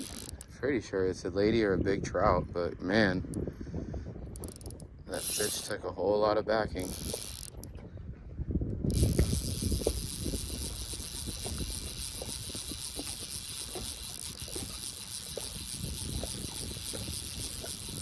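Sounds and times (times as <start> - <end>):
fishing reel ratcheting: 0.0 - 0.6, 4.3 - 5.8, 6.7 - 7.8, 8.8 - 18.0.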